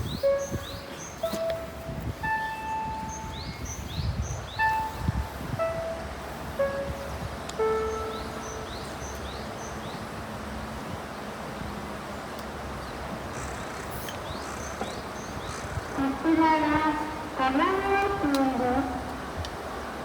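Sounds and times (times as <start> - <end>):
small birds chirping: 0.0 - 10.1, 12.8 - 17.2
background hiss: 0.0 - 20.0.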